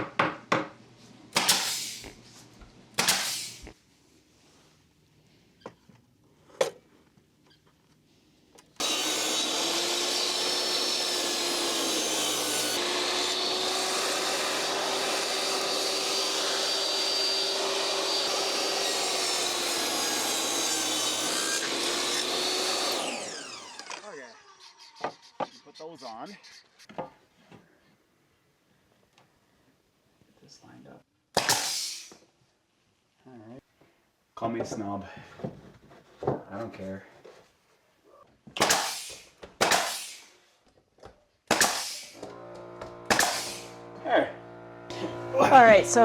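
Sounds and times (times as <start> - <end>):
power tool cutting wood: 8.8 - 25.6, 41.5 - 46.0.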